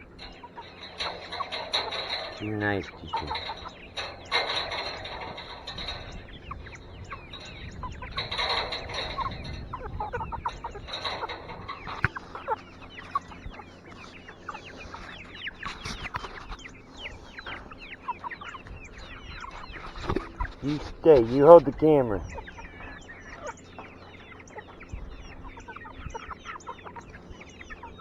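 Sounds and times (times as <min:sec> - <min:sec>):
chickens clucking: 0:00.0 - 0:28.0.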